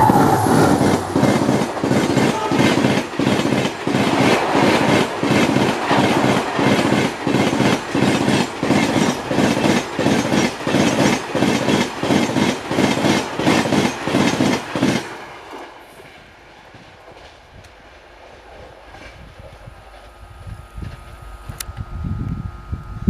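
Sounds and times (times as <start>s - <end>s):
train rumble: 0.0s - 23.0s
train wheels clattering over rail joints: 0.8s - 17.8s.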